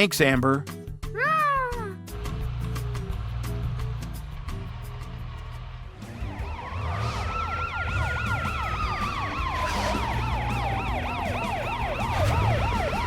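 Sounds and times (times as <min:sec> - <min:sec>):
emergency siren yelp and wail: 0:06.0 - 0:13.0.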